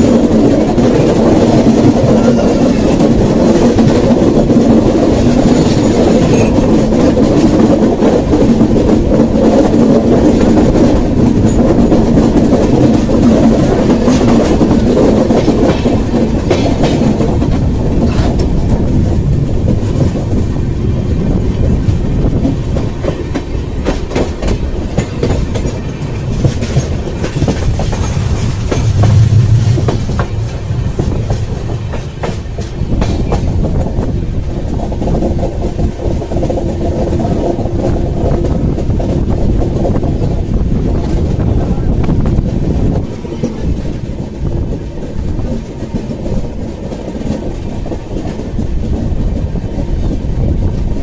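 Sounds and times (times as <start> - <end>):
train rumble: 0.0 - 51.0.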